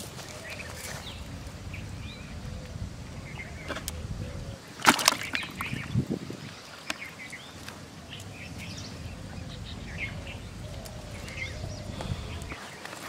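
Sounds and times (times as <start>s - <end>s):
low outdoor rumble: 0.0s - 6.6s, 7.3s - 12.6s
small birds chirping: 0.0s - 13.0s.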